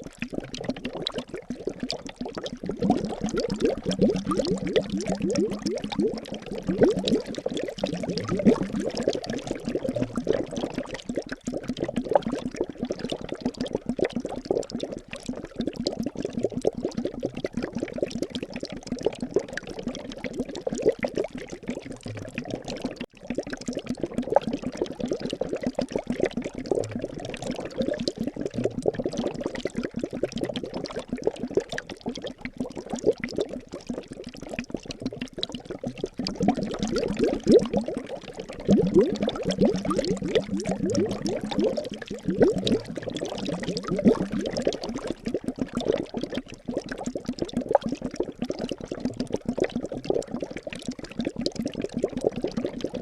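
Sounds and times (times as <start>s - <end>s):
liquid bubbling and gurgling: 0.0s - 53.0s.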